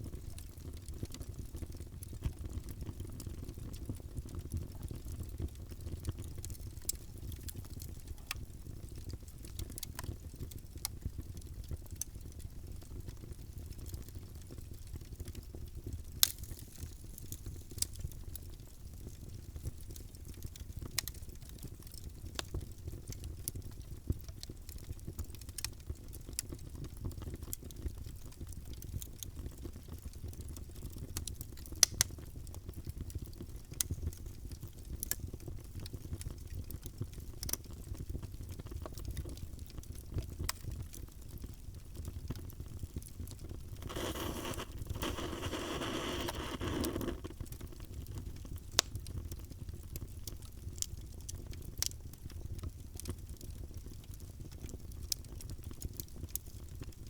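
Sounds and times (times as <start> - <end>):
wood fire crackling and popping: 0.0 - 57.0
rushing hiss: 43.9 - 47.2.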